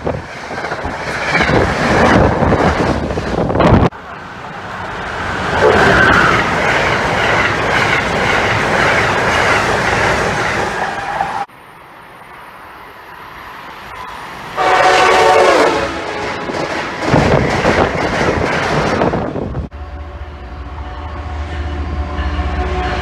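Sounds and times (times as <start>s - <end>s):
train passing: 0.0s - 23.0s
train air horn: 14.6s - 16.5s, 19.7s - 23.0s.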